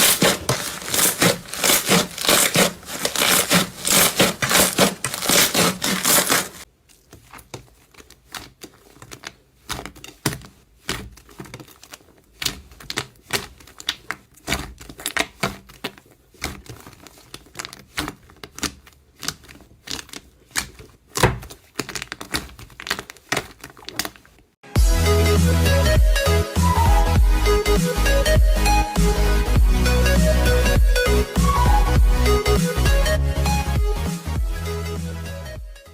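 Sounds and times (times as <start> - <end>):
slime squeezed by hand: 0.0 - 6.6.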